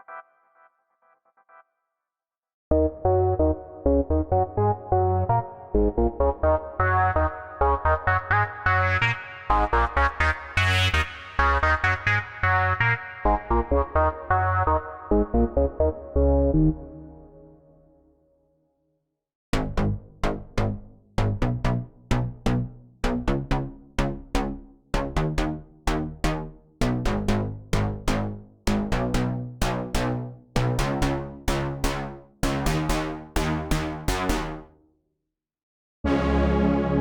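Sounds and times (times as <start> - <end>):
plucked synthesizer melody: 2.7 - 10.7, 11.4 - 17.8, 36.1 - 37.0.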